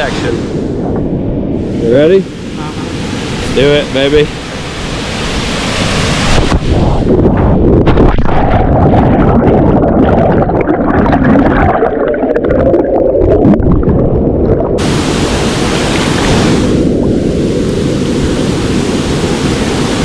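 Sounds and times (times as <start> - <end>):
muffled underwater water churning: 0.1 - 20.0
waterfall rushing: 1.6 - 7.1, 14.8 - 20.0.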